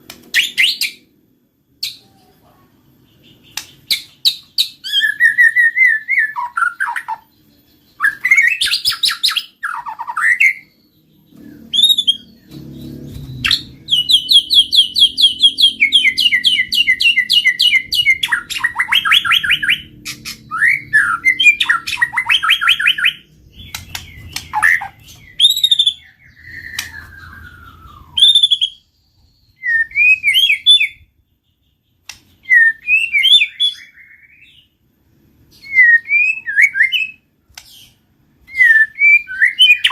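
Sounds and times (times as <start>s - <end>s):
bird singing whistled phrases: 4.3s - 31.0s, 32.4s - 34.7s, 35.6s - 37.2s, 38.5s - 39.9s.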